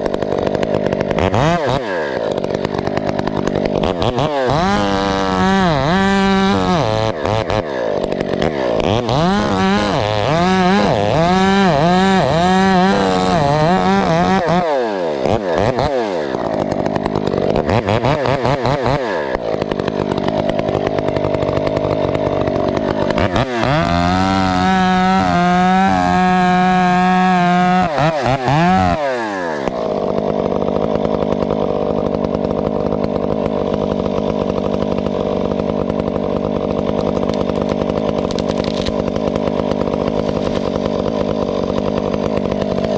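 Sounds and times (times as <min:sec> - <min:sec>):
chainsaw cutting: 0:00.0 - 0:42.9.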